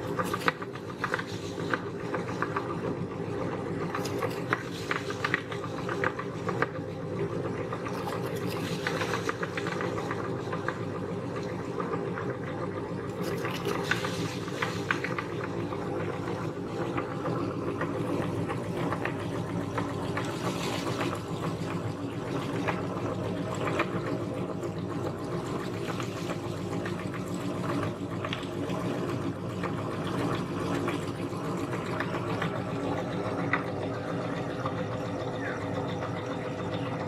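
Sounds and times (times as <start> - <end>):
small clicks and crackles: 0.0 - 3.0, 3.8 - 6.9, 7.7 - 12.0, 13.0 - 17.1
meat grinder motor hum: 0.0 - 37.0.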